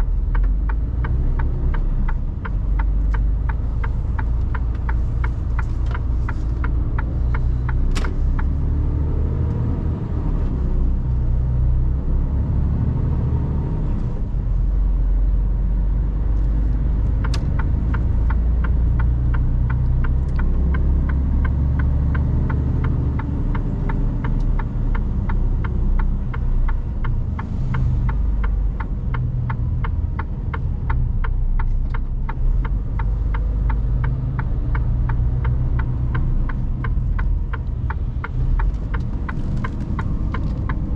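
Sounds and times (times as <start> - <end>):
truck diesel engine drone: 0.0 - 40.9
fast regular ticking: 0.1 - 7.8, 17.2 - 40.9.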